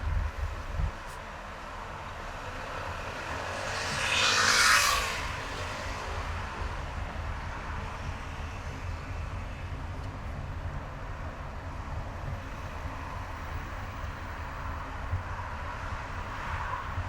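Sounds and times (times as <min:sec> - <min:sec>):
car engine and tyre rumble: 0:00.0 - 0:17.0
road hiss: 0:00.3 - 0:17.0.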